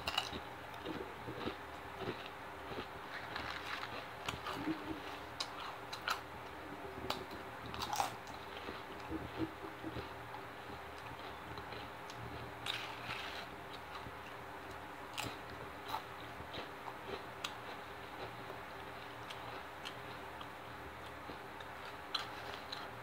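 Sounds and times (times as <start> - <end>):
chips crunching: 0.0 - 6.3, 7.0 - 10.1, 12.6 - 17.6, 21.1 - 22.9
faint steady hum: 0.0 - 23.0.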